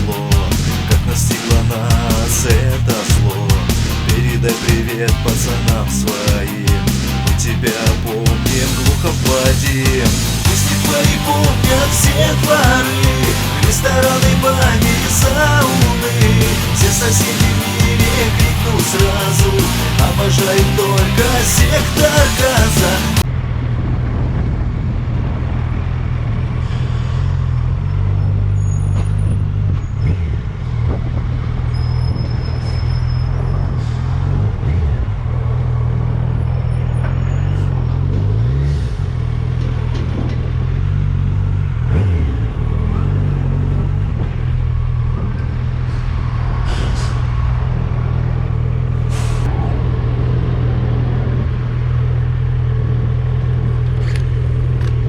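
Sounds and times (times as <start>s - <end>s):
motorcycle engine running: 0.0s - 26.6s, 37.6s - 46.0s, 47.6s - 55.0s.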